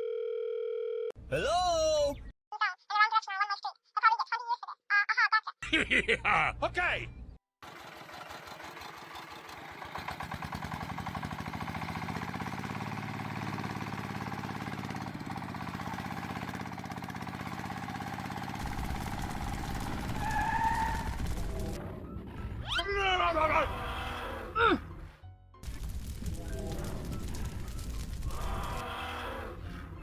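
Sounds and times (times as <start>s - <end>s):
small motor running: 10.6s - 21.8s.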